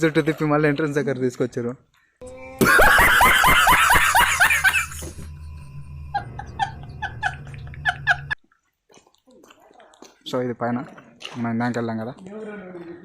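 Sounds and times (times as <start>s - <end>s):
steady low hum: 2.4s - 8.4s
person laughing: 2.5s - 5.2s, 6.1s - 8.4s.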